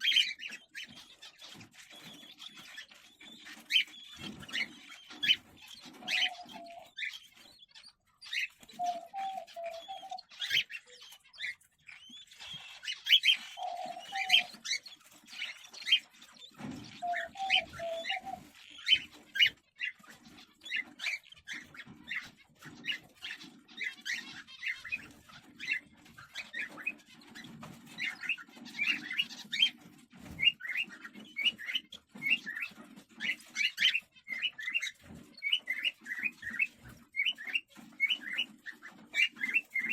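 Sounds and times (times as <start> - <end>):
cockatiels chirping: 0.0 - 39.9
low warbling bird calls: 3.1 - 19.9.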